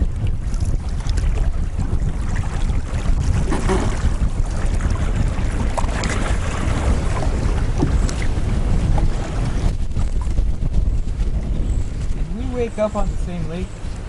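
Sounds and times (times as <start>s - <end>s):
faint water splashes: 0.0s - 14.0s
wind buffeting microphone: 0.0s - 14.0s.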